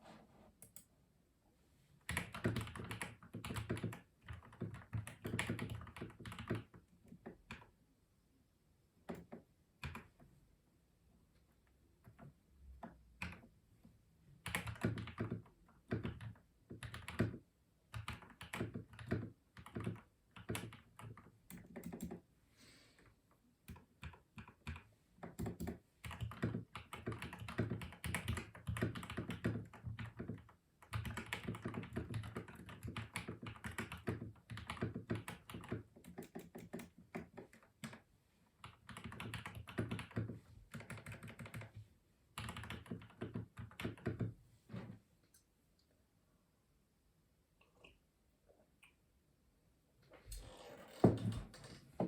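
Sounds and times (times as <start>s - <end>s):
mechanical keyboard typing: 2.1s - 7.7s, 14.4s - 22.2s, 23.7s - 38.0s, 38.6s - 41.7s, 42.4s - 44.3s.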